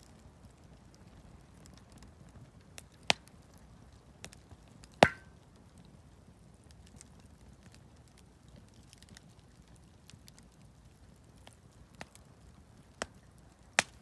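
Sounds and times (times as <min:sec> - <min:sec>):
campfire crackling: 0:00.0 - 0:14.0
loud sharp pops: 0:05.0 - 0:05.3.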